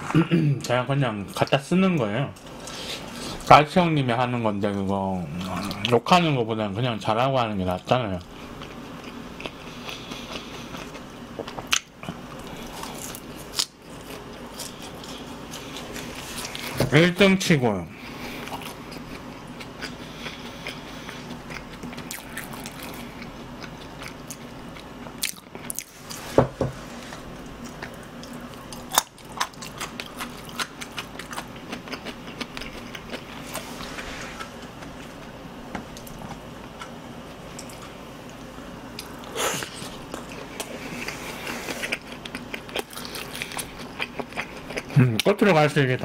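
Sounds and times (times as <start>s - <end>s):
faint steady hum: 0.0s - 46.0s
chewing crispy fried chicken: 7.7s - 16.8s, 18.0s - 26.2s, 26.9s - 45.6s.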